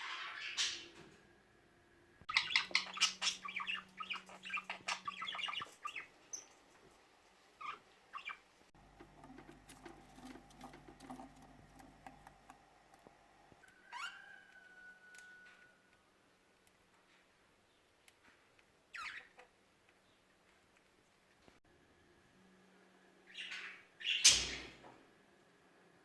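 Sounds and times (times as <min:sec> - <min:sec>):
budgerigars chattering: 0:02.3 - 0:06.5.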